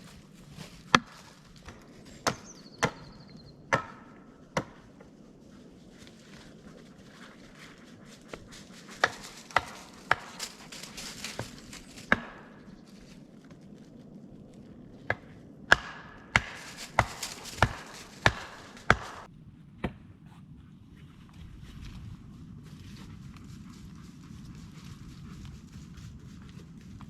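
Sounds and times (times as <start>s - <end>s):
wood chopping strikes: 3.7s - 4.8s, 15.1s - 20.0s.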